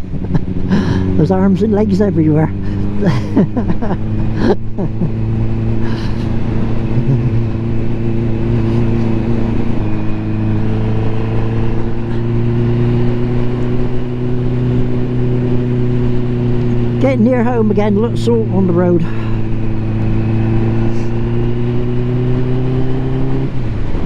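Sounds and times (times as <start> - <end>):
motorcycle engine running: 0.0 - 24.0
road and wind noise: 0.0 - 24.0.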